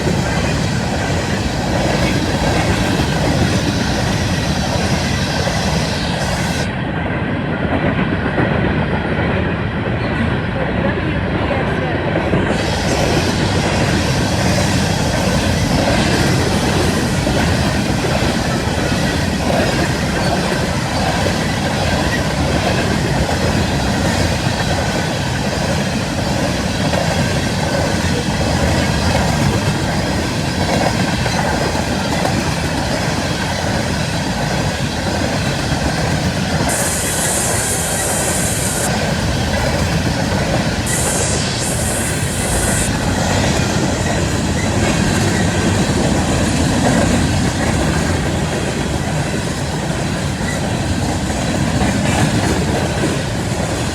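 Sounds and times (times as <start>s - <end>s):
train wheels clattering over rails: 0.0s - 41.0s, 42.4s - 53.9s.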